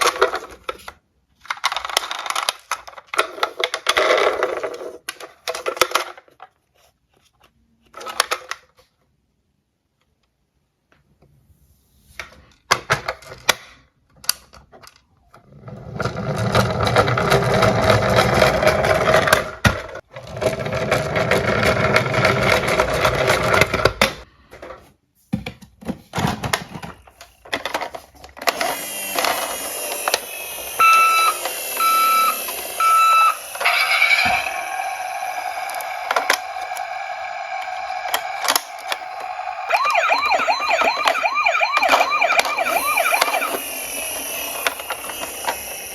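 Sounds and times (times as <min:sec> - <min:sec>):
toy cars clicking: 0:00.0 - 0:06.6, 0:16.0 - 0:24.3, 0:26.0 - 0:45.9
toy cars rolling: 0:00.0 - 0:09.0, 0:12.1 - 0:24.9, 0:25.8 - 0:45.9
wavering electronic siren: 0:30.0 - 0:45.9
electronic beeps: 0:30.8 - 0:34.0, 0:39.6 - 0:43.6.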